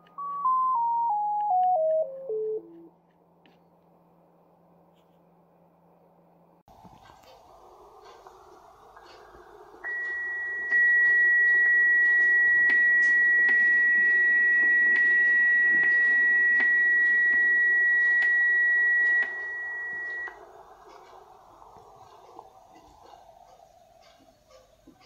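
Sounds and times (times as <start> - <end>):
receiver hiss: 6.7 - 25.0.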